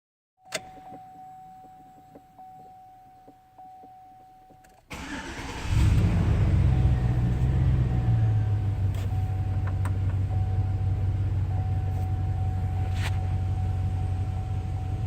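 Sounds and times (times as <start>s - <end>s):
truck engine cranking and running: 4.9s - 11.6s
steady warning tone: 6.6s - 15.0s.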